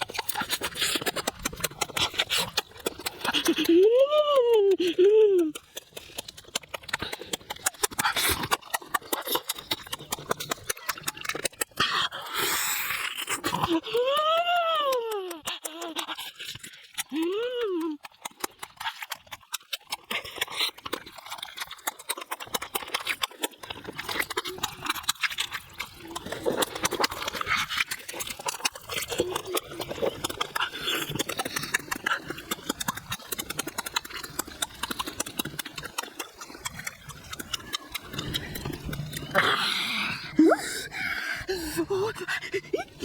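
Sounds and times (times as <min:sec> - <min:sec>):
wet chewing and lip-smacking: 0:00.0 - 0:43.0.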